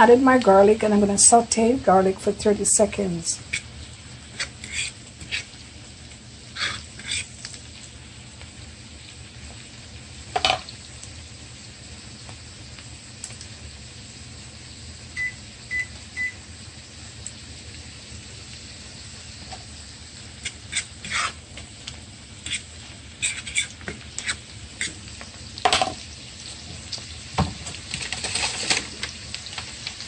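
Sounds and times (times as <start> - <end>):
onions and garlic sizzling in pan: 0.0 - 30.0
utensil scraping a pan: 3.5 - 5.6, 6.5 - 7.5, 20.4 - 21.5, 22.4 - 25.0, 27.9 - 29.0.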